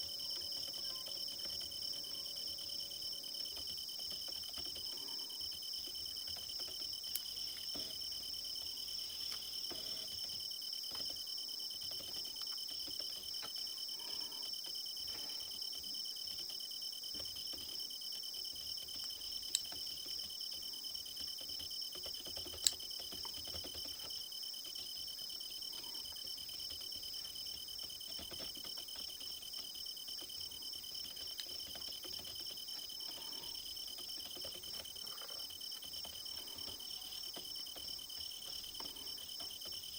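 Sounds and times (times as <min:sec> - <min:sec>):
crickets chirping: 0:00.0 - 0:39.9
sharp clicks: 0:21.2 - 0:24.8.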